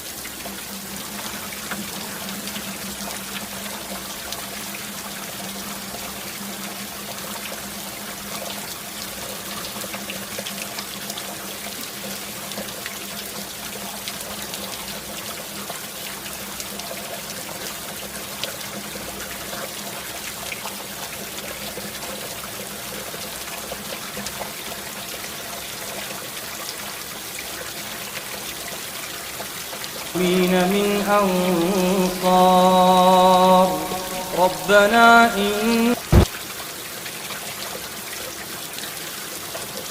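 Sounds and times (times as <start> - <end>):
rain rushing and hissing: 0.0 - 24.8, 28.3 - 39.9.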